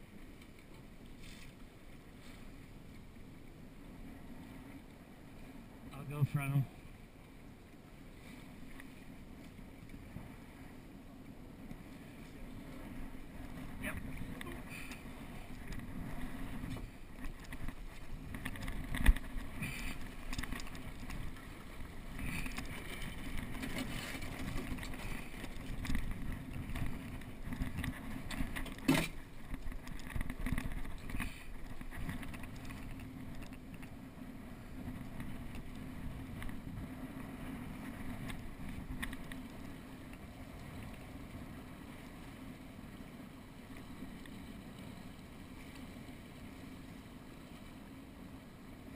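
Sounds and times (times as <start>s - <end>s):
water rushing along hull: 0.0s - 48.9s
wind on microphone: 8.1s - 42.1s.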